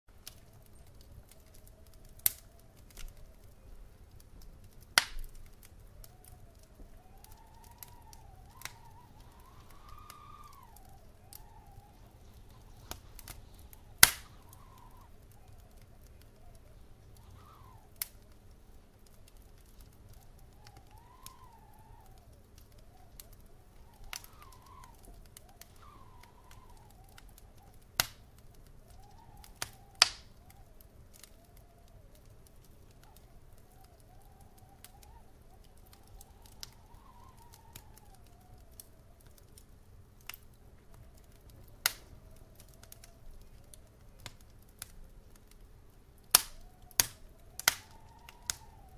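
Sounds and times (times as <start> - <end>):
wood fire crackling: 0.1 - 48.9
faint wavering whistle: 5.7 - 18.0, 19.8 - 28.0, 28.7 - 39.4, 46.5 - 48.9.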